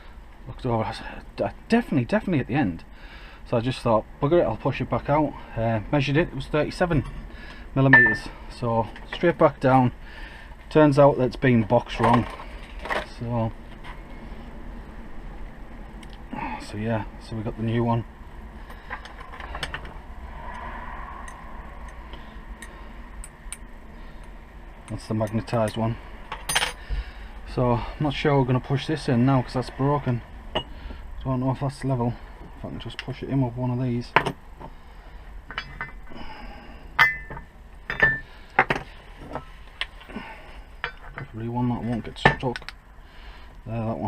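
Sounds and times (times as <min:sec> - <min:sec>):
steady low hum: 0:00.0 - 0:44.0
metal tools clinking: 0:07.9 - 0:08.3, 0:24.9 - 0:26.8, 0:35.5 - 0:36.0, 0:37.0 - 0:38.3
sharp ringing knocks: 0:08.0 - 0:08.3.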